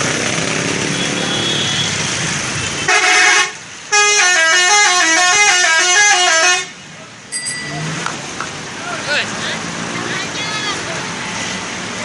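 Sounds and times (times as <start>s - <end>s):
street noise: 0.0s - 12.0s
musical horn playing tune: 2.9s - 6.7s.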